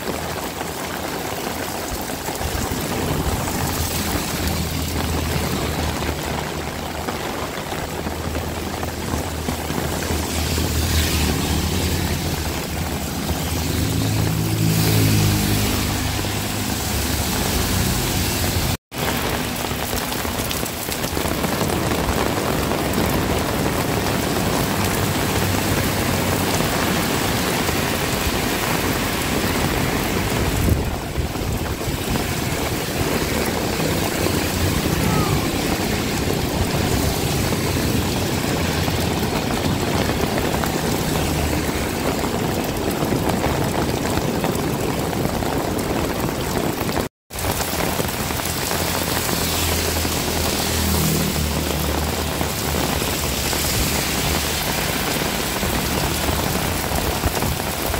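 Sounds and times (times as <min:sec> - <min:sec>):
heavy rain falling: 0:00.0 - 0:57.9
vehicle engine running by: 0:09.8 - 0:18.7.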